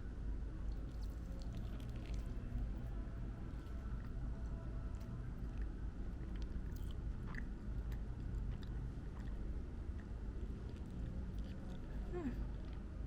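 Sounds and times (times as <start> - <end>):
low background rumble: 0.0 - 13.0
crunching fried chicken: 0.7 - 4.2.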